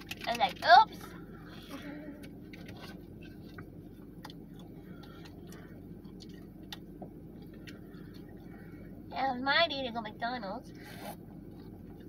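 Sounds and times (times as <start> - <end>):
low hum in car cabin: 0.0 - 12.0.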